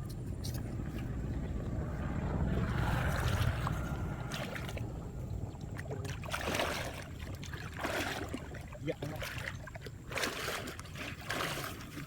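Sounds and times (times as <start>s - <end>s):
low rumble: 0.0s - 7.7s
water sloshing and splashing: 0.0s - 12.0s.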